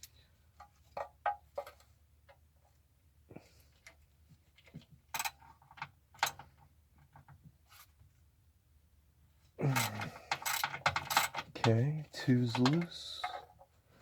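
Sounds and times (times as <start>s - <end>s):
man talking: 11.6s - 13.4s.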